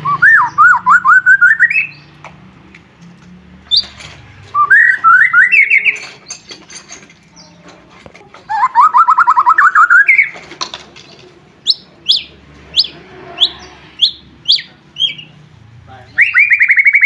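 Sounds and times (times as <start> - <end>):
bird singing trills and whistles: 0.0 - 2.1, 4.6 - 6.4, 8.5 - 10.4, 11.6 - 15.4, 16.1 - 17.0.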